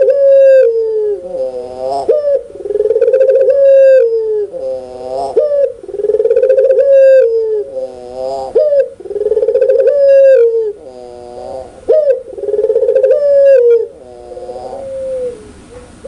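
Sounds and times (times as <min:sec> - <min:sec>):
dove laughing call: 0:00.0 - 0:16.0.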